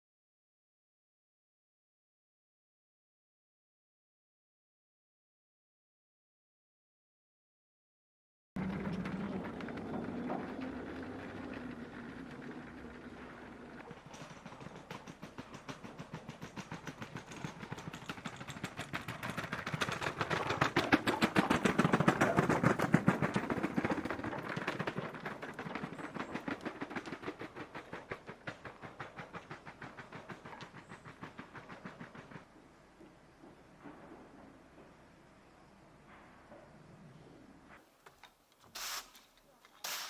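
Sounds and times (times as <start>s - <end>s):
train wheels clicking over rails: 8.6s - 36.4s, 38.8s - 40.0s.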